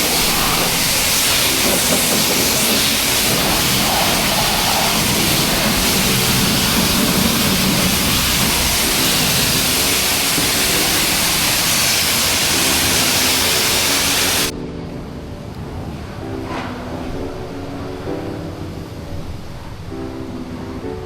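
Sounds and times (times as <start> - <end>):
pressure washer spraying water: 0.0 - 14.5.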